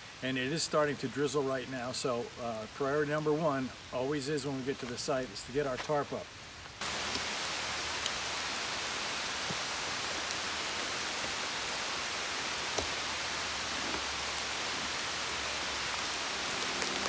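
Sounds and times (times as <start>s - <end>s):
light rain hissing: 0.0s - 17.0s
raindrop ticks: 4.1s - 17.0s.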